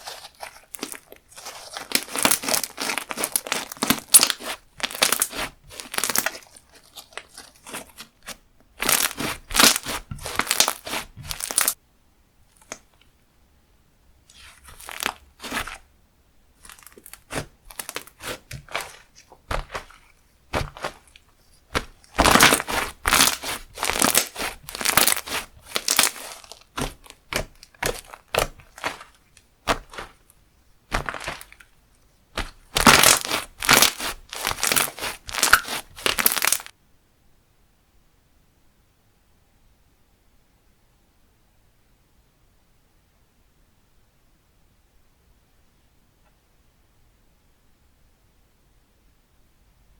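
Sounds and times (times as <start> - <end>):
slime crackling and popping: 0.0 - 11.8, 14.3 - 15.8, 16.6 - 30.3, 30.9 - 31.7, 32.4 - 36.7.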